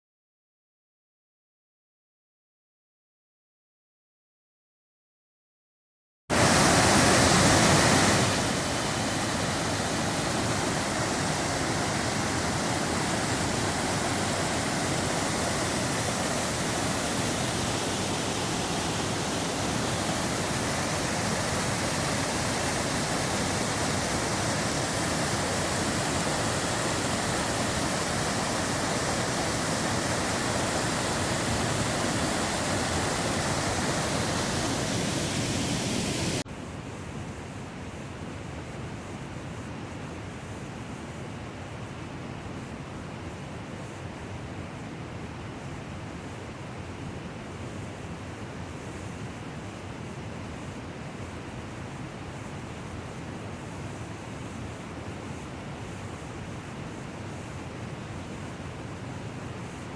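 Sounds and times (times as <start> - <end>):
waterfall rushing: 6.3 - 36.4.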